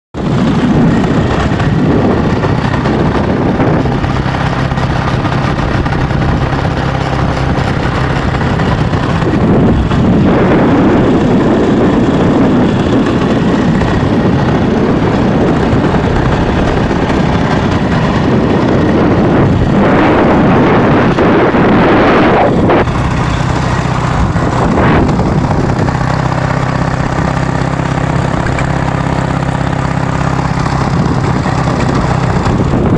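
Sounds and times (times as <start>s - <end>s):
motorcycle engine running: 0.1s - 32.9s.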